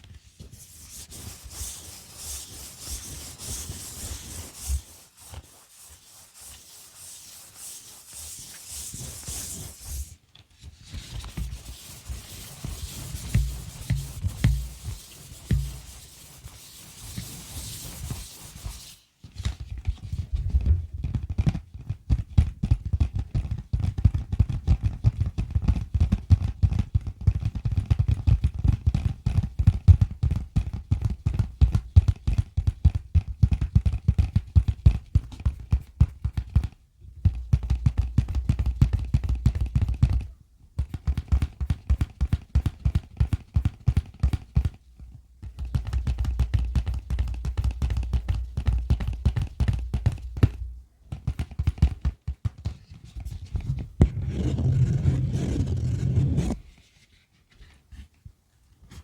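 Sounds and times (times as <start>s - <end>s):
fast close-up tapping: 13.2s - 16.0s.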